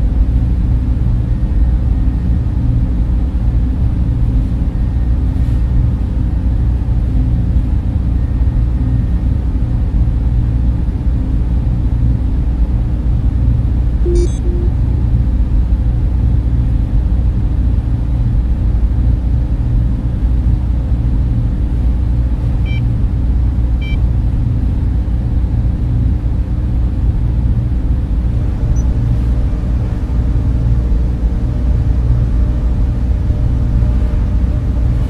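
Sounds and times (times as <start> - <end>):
faint short beeps: 14.0 - 14.8, 22.7 - 22.9
cooling fans humming: 17.6 - 35.0.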